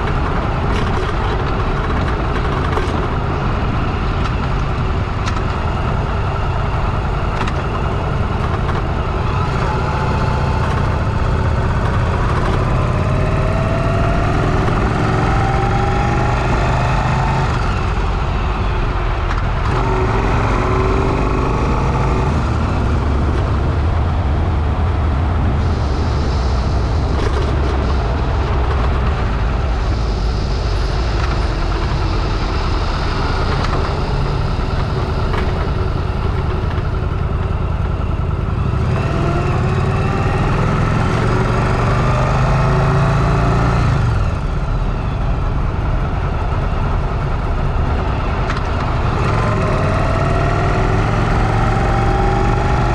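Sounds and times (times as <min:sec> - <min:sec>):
motorcycle engine running: 0:00.0 - 0:52.9
wind rushing over microphone: 0:00.0 - 0:52.9.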